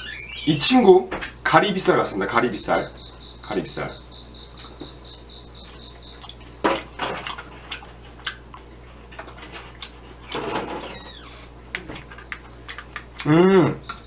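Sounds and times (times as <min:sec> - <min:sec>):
man chewing food: 0:04.0 - 0:14.0.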